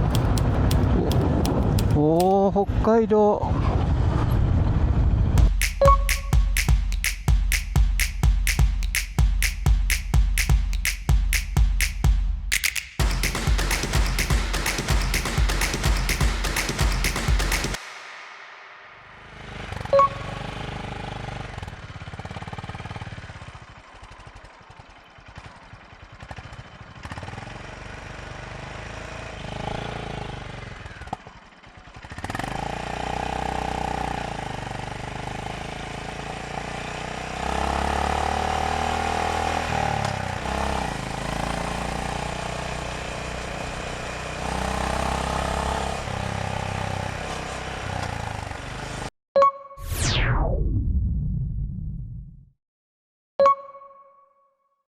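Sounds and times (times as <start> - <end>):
sharp click: 0.0 - 2.4, 5.6 - 19.0
motorcycle engine running: 20.4 - 49.0.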